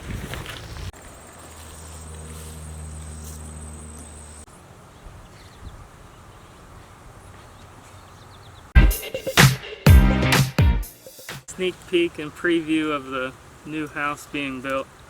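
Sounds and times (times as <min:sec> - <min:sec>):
insects chirping: 0:00.9 - 0:04.5.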